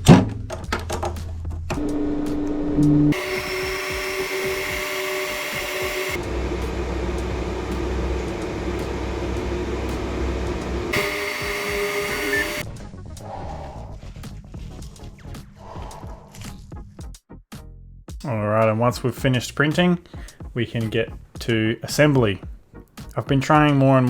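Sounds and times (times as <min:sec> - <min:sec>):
printer motors whining: 0:03.1 - 0:12.6.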